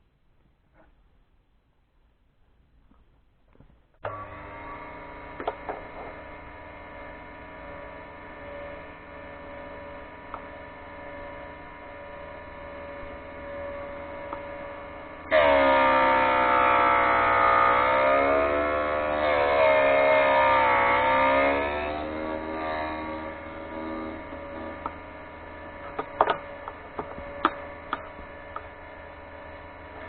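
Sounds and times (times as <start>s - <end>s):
grinder motor humming: 4.0s - 30.0s
drill bit grinding on wheel: 4.1s - 30.0s.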